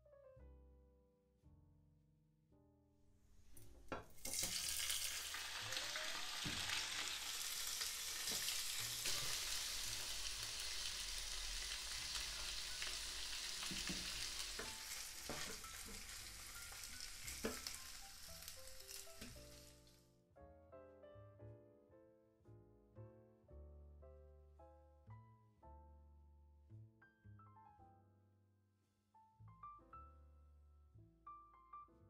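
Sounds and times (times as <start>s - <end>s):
food sizzling in hot oil: 4.1s - 20.0s
spatula tapping and scraping pan: 13.6s - 17.9s.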